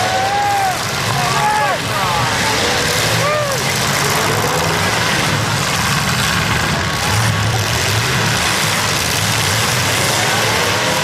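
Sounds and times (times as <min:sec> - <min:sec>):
car engines running: 0:00.0 - 0:11.0.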